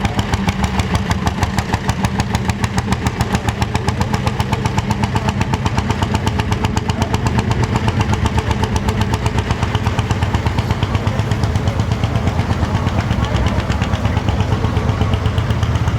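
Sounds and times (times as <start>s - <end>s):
tractor engine running: 0.0s - 15.9s.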